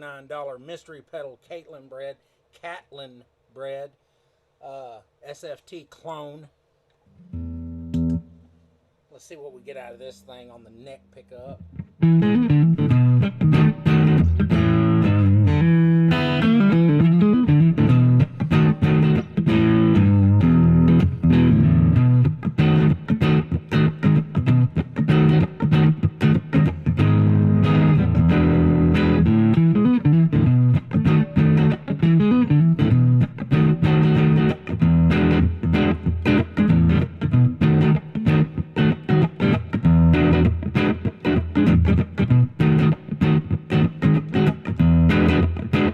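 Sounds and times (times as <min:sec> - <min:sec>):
overdriven electric guitar: 0:07.2 - 0:08.4, 0:11.4 - 0:45.9.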